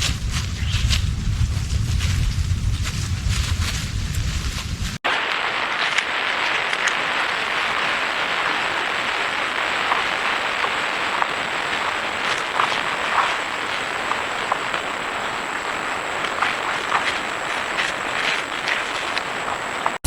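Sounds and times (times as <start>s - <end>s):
low rumble: 0.0s - 5.0s
steady hiss: 1.8s - 20.0s.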